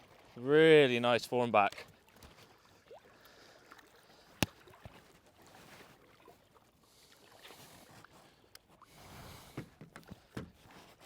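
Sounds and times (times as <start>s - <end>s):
faint water: 0.0s - 11.0s
knocks on a kayak: 9.6s - 10.6s.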